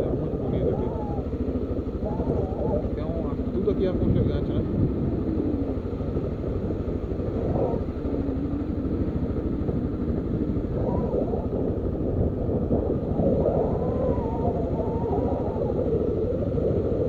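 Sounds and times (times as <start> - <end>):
motorcycle engine running: 0.0 - 17.0
wind rush on microphone: 0.0 - 17.0.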